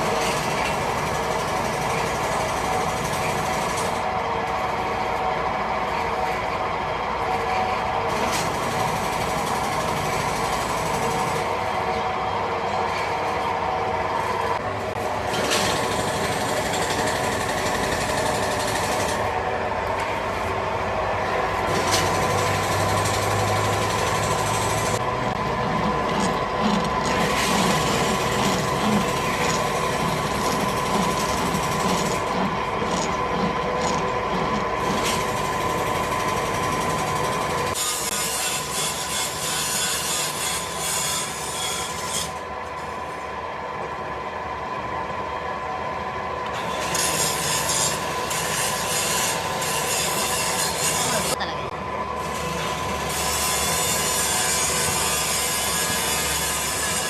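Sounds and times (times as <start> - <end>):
metalworking machinery whining: 0.0 - 57.0
rasping rubbing noise: 22.9 - 36.0.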